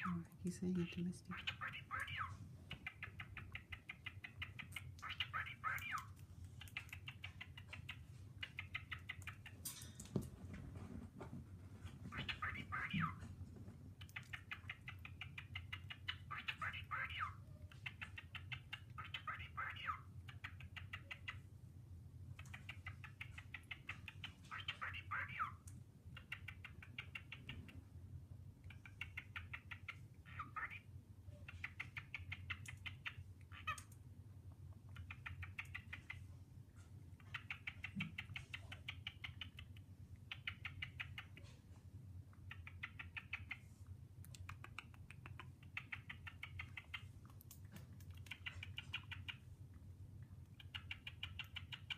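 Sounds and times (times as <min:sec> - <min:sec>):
cockatiel chattering: 0:00.8 - 0:09.6, 0:12.0 - 0:13.3, 0:14.0 - 0:21.4, 0:22.3 - 0:27.8, 0:28.7 - 0:34.0, 0:34.8 - 0:36.3, 0:37.2 - 0:41.6, 0:42.4 - 0:43.7, 0:44.3 - 0:49.5, 0:50.5 - 0:51.9.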